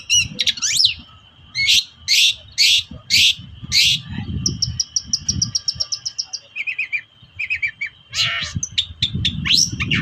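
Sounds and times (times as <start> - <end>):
bird singing rasping notes: 0.0 - 10.0
high ticking bird notes: 0.0 - 10.0.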